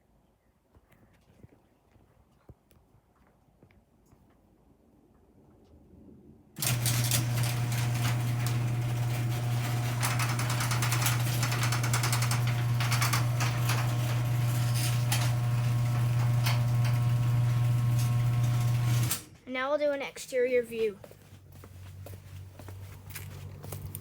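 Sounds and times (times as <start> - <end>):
garage door opener motor hum: 6.6 - 19.4
chain and door rattling: 6.7 - 14.4.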